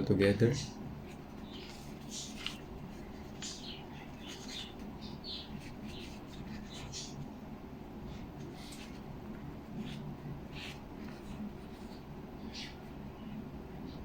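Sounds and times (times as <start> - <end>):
low steady hum: 0.0 - 14.0
glue stick rubbing on paper: 1.1 - 7.2, 9.7 - 12.9.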